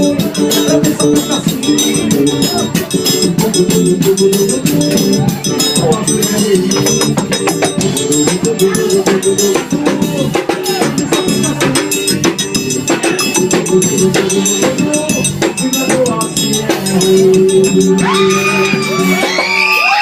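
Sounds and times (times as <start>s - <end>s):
bass drum and snare beat: 0.0s - 20.0s
live band playing: 0.0s - 20.0s.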